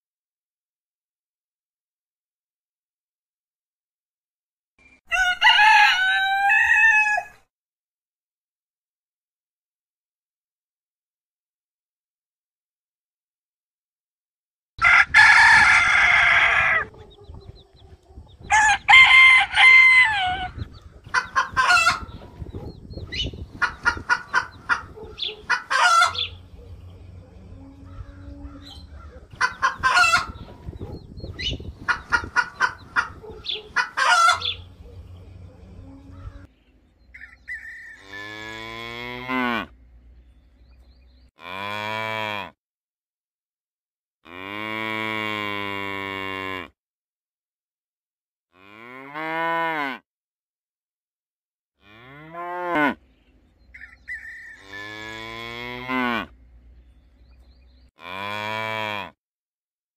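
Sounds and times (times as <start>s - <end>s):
rooster crowing: 5.1s - 7.4s, 14.8s - 17.0s, 18.5s - 20.6s, 53.7s - 54.8s
chickens clucking: 16.0s - 18.9s, 20.1s - 36.5s
cattle mooing: 37.9s - 39.7s, 44.3s - 46.7s, 48.6s - 50.0s, 51.8s - 53.0s, 54.5s - 56.3s, 58.0s - 59.2s.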